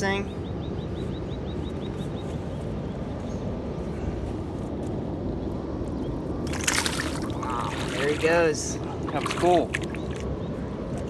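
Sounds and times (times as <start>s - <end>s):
fish splashing into water: 6.4s - 10.3s.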